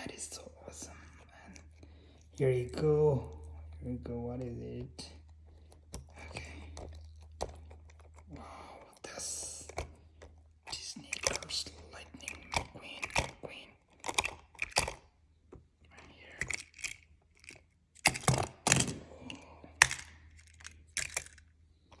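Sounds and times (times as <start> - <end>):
plastic toys clicking and knocking: 9.6 - 15.6, 16.2 - 22.0.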